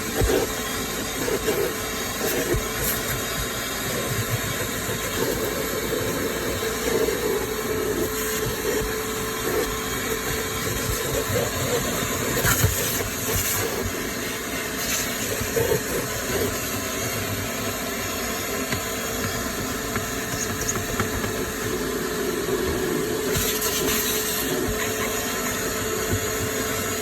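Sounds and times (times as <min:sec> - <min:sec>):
vacuum motor whine: 0:00.0 - 0:27.0
vacuum nozzle rattling and clicking: 0:18.6 - 0:21.9.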